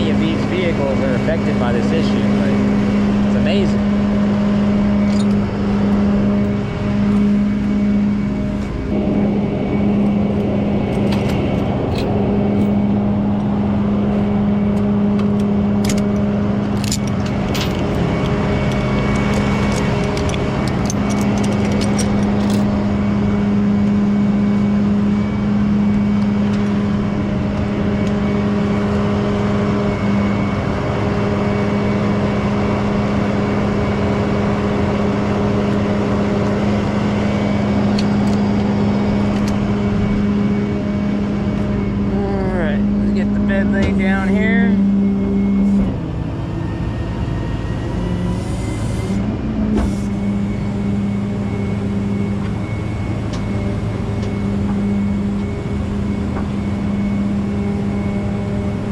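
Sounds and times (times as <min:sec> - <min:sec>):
truck engine droning: 0:00.0 - 0:58.9
metallic clicks and rattles: 0:15.3 - 0:22.7.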